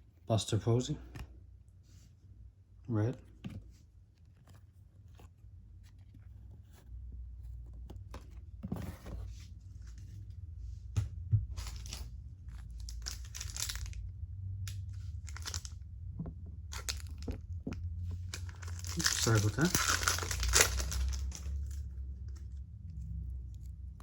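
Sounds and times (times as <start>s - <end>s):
wrapper torn and crinkled: 11.6s - 14.0s, 15.3s - 15.8s, 18.2s - 21.9s
cards rustling and clicking: 11.6s - 24.0s.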